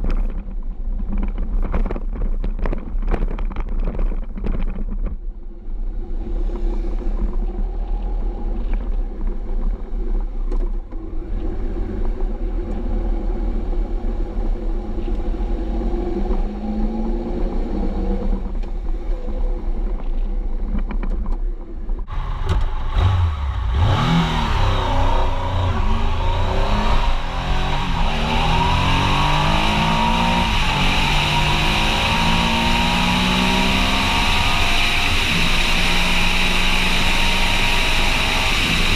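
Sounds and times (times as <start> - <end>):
wind noise: 0.0 - 38.9
motorcycle engine revving: 22.1 - 38.9.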